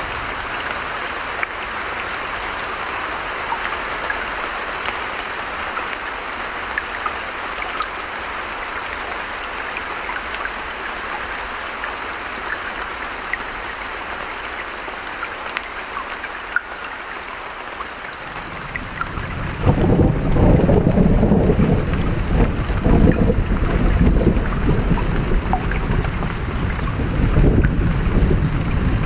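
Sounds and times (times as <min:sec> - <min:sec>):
rain hissing: 0:00.0 - 0:29.0
raindrops ticking: 0:14.4 - 0:29.0.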